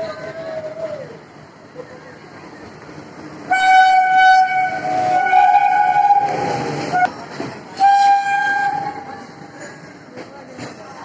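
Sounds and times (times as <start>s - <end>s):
train wheels clicking on rails: 1.3s - 11.0s
train horn blasts: 3.5s - 7.1s, 7.8s - 9.0s.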